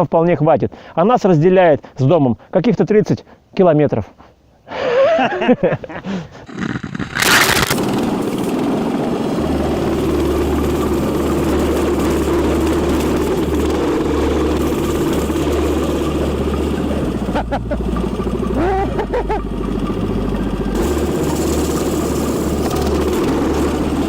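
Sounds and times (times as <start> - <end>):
dirt bike engine running: 6.6 - 24.0.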